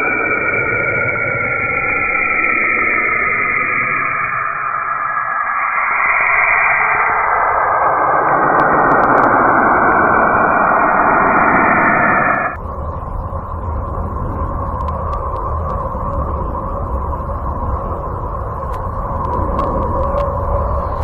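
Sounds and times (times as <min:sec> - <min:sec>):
rushing radio static noise: 0:00.0 - 0:15.4
low rumble: 0:00.0 - 0:21.0
faint clicks: 0:14.6 - 0:16.4.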